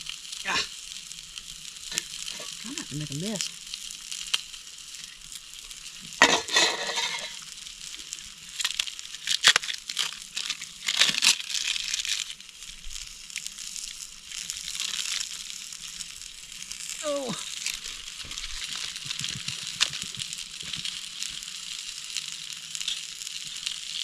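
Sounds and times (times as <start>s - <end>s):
faint hiss: 0.0s - 24.0s
crinkling handling noises: 6.2s - 12.4s, 17.4s - 21.6s.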